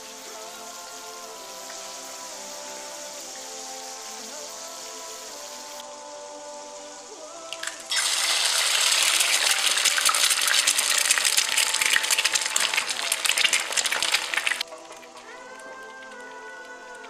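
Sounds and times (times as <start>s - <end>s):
sauce sizzling in frying pan: 0.0s - 5.8s, 7.6s - 15.2s.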